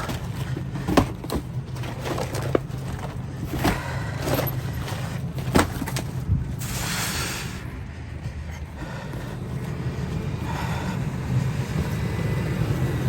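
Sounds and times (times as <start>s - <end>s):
knocks and thumps of boxes: 0.0s - 6.6s
rustling trash: 0.0s - 7.7s
steady low hum: 0.0s - 13.0s.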